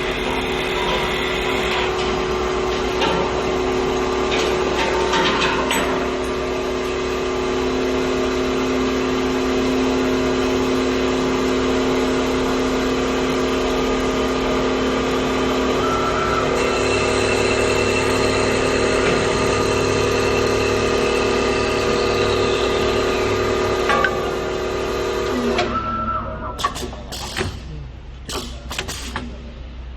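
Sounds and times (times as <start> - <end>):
wood lathe motor whine: 0.0 - 2.6, 6.1 - 25.7.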